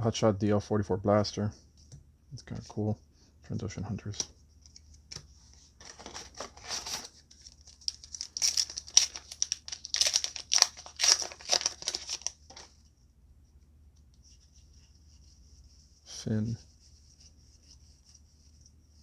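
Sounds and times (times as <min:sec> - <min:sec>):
foil wrapper tearing and crinkling: 0:06.0 - 0:12.7.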